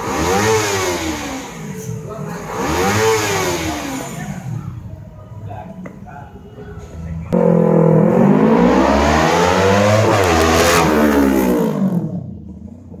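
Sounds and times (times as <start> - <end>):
motorcycle engine revved hard: 0.0 - 4.6, 7.4 - 13.0.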